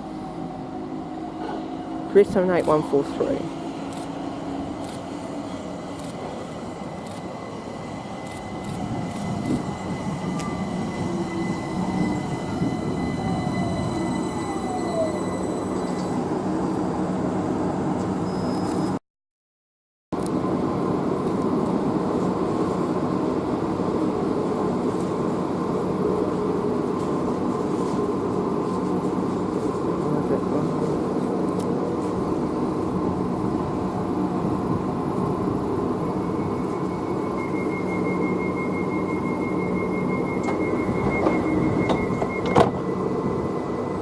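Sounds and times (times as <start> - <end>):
train rumbling: 0.0 - 19.0, 20.2 - 44.0
thin high tone: 8.2 - 16.3.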